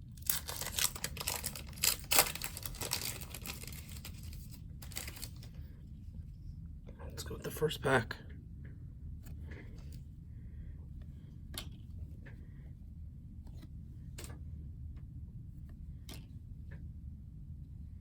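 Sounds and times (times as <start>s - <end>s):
card pack wrapper rustling: 0.0s - 5.6s
low steady hum: 0.0s - 18.0s.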